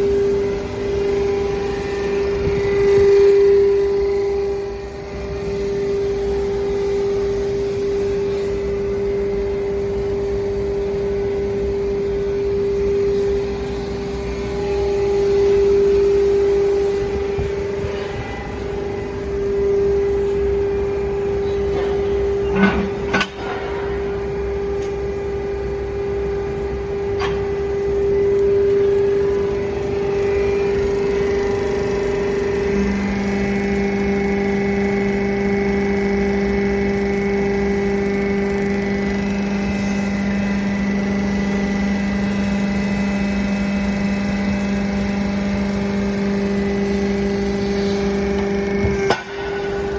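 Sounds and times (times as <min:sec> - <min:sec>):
hydraulic baler humming: 0:00.0 - 0:49.9
sharp metal clanks: 0:21.4 - 0:26.2, 0:48.4 - 0:49.9.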